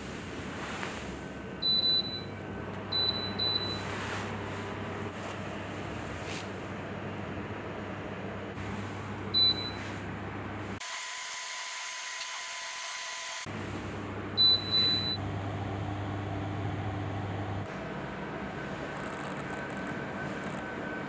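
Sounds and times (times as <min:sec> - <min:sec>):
low machine hum: 0:00.0 - 0:10.8, 0:13.4 - 0:21.0.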